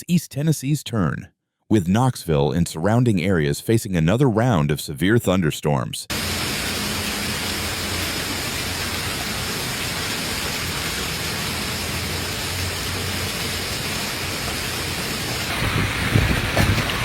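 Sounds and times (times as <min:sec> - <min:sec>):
heavy rain falling: 0:06.1 - 0:17.0.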